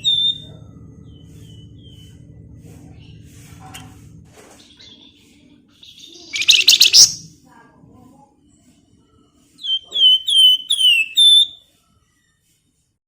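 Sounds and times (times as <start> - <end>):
bird buzzy trill: 0.0 - 7.3, 9.6 - 11.6
bird whistles sliding down: 9.6 - 11.6.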